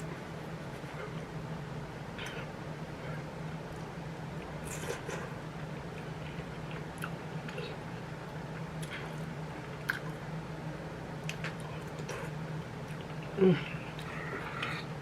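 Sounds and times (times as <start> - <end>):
faint low hum: 0.0 - 15.0
person chewing food: 2.1 - 10.2, 11.2 - 15.0.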